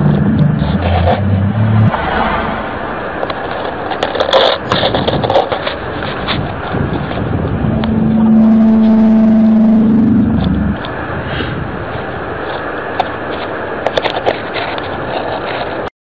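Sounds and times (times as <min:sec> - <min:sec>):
outdoor rumble: 0:00.0 - 0:14.8
low droning tone: 0:07.4 - 0:11.0.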